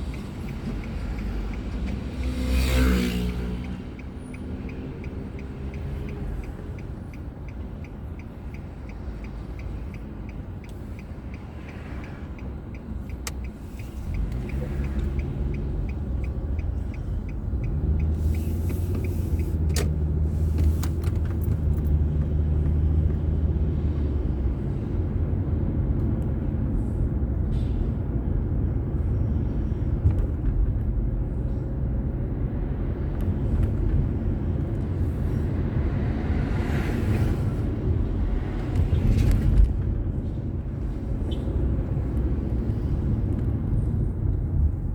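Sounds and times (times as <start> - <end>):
light even ticking: 0.0 - 2.5, 3.1 - 19.9
car engine and road drone: 0.0 - 44.9.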